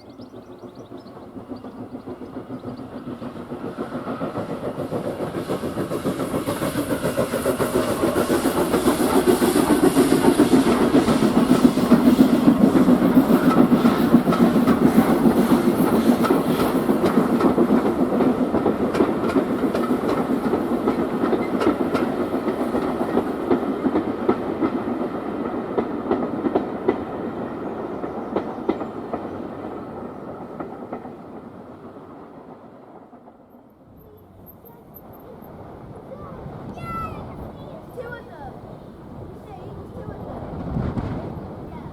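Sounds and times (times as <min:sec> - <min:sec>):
train wheels clattering on rails: 0:00.0 - 0:41.9.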